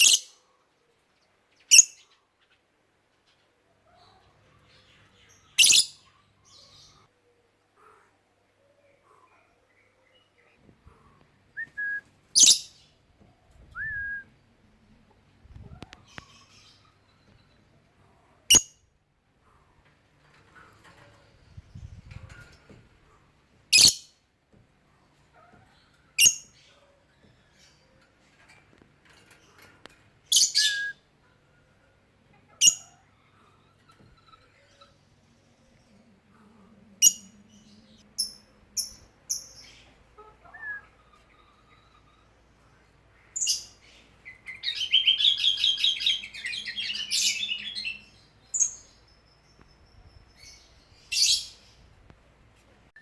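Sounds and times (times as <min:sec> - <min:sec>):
soft bird chattering: 0:04.8 - 0:07.1, 0:12.4 - 0:12.8
lovebird shrill calls: 0:05.6 - 0:06.0, 0:12.4 - 0:12.7
faint chatter: 0:24.7 - 0:44.7.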